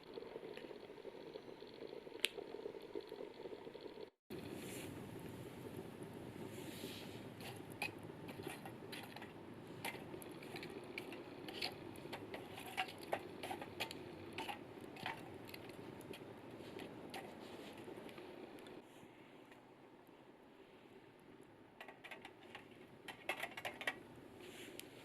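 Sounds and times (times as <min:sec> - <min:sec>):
wood fire crackling: 0:00.0 - 0:18.8.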